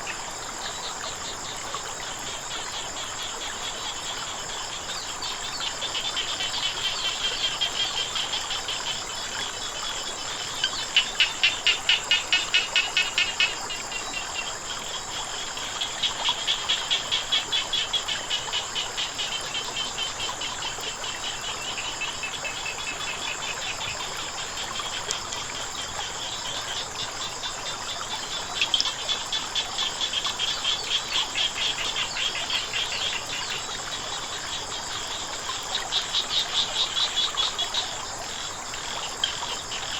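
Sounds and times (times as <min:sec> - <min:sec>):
frogs croaking: 0:00.0 - 0:39.9
high-pitched insect chorus: 0:00.0 - 0:39.9.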